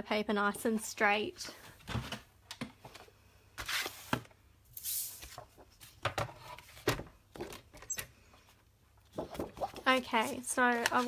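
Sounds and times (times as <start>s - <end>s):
paper rustling: 9.1s - 11.0s.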